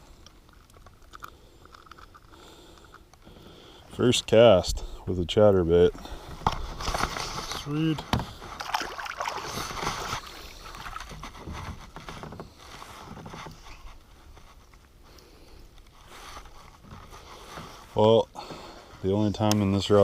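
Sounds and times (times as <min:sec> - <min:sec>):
water splashing and sloshing: 0:05.8 - 0:15.0.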